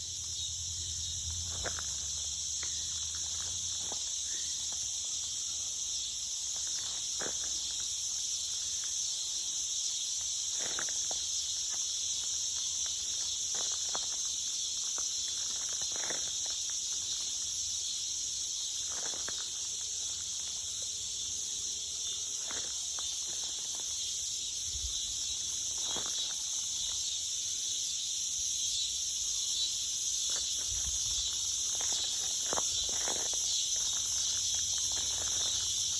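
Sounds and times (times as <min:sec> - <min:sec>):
insects chorus: 0:00.0 - 0:35.9
footsteps on trail: 0:01.1 - 0:05.5, 0:06.4 - 0:09.0, 0:10.5 - 0:17.5, 0:18.8 - 0:20.9, 0:22.1 - 0:24.2, 0:25.1 - 0:27.0, 0:30.2 - 0:35.9.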